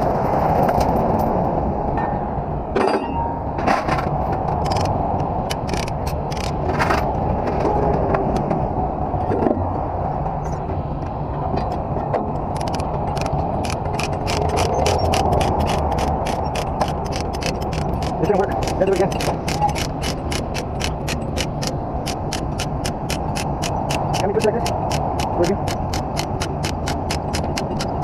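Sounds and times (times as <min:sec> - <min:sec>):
sharp metallic clicks: 0:04.6 - 0:06.6, 0:12.5 - 0:28.0.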